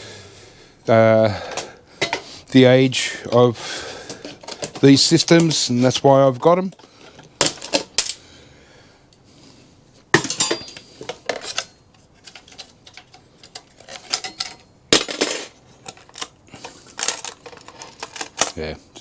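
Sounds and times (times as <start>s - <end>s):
metal computer parts clinking: 10.2s - 18.7s.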